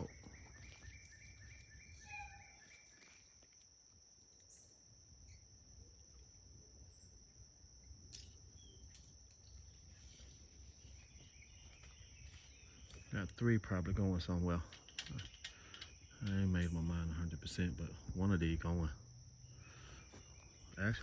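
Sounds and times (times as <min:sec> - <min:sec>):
high-pitched insect drone: 0:00.0 - 0:21.0
pulsing insect trill: 0:00.0 - 0:21.0
short insect chirp: 0:00.0 - 0:21.0.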